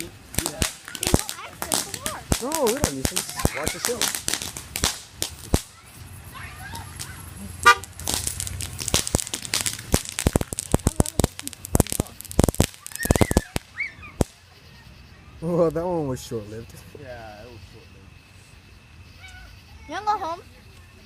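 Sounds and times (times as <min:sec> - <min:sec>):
fireworks popping and crackling: 0:00.0 - 0:14.8.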